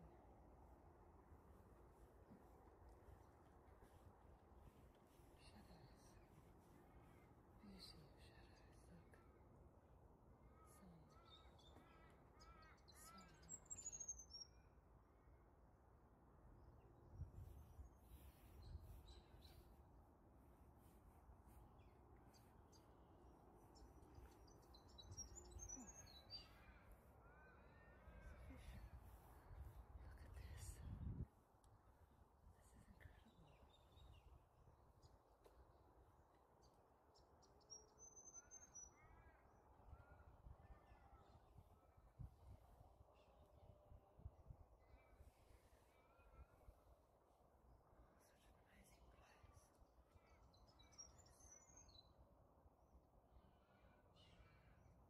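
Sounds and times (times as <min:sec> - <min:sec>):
faint bird calls: 0:10.4 - 0:14.8, 0:23.7 - 0:31.0.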